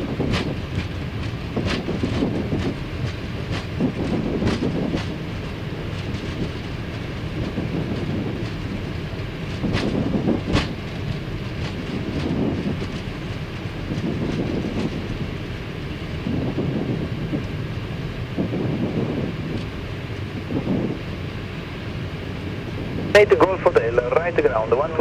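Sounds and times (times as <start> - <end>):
wheels knocking over bumps: 0.0 - 17.8
wheels rumbling on runway: 0.0 - 25.0.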